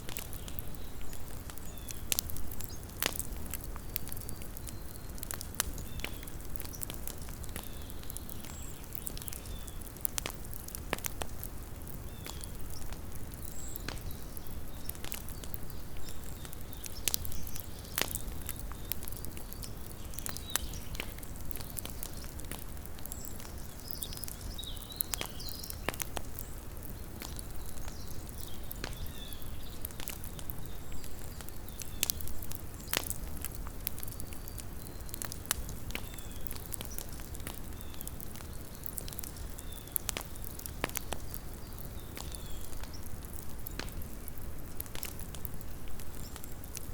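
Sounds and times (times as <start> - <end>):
campfire crackling and popping: 0.0 - 46.9.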